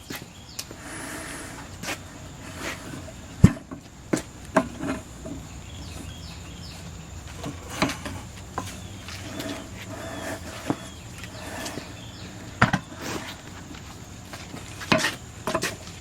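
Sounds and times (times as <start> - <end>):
hand tools striking a tire: 3.4 - 5.4, 14.8 - 15.8.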